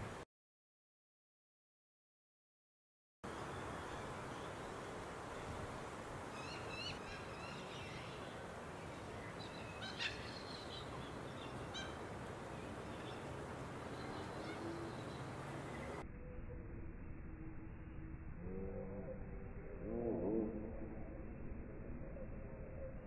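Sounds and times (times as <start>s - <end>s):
birds chirping: 3.3s - 16.0s
steady background noise: 3.3s - 19.9s.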